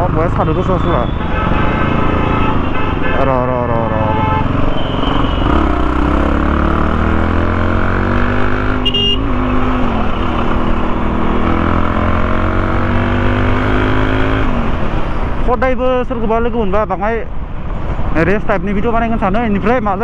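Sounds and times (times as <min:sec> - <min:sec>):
motorcycle engine running: 0:04.2 - 0:15.4.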